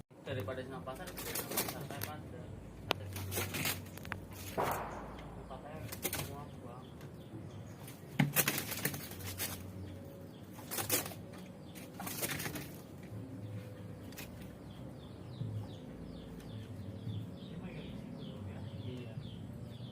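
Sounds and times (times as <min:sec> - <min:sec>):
bird wings flapping: 0:01.0 - 0:02.1, 0:03.1 - 0:05.0, 0:05.8 - 0:06.4, 0:07.9 - 0:09.7, 0:11.8 - 0:12.9.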